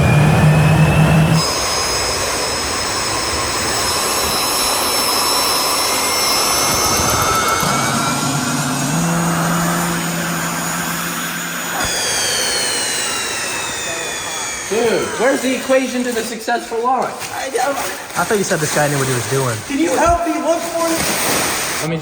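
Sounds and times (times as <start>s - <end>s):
low hum: 0.0s - 16.3s
jet engine whining roar: 0.0s - 22.0s.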